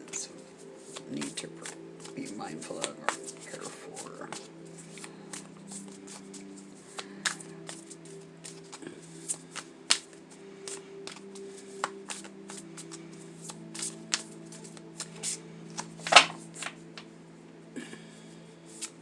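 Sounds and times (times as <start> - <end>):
low steady drone: 0.0 - 19.0
cards being shuffled: 0.8 - 10.1, 10.7 - 16.8
card slap: 15.8 - 16.8.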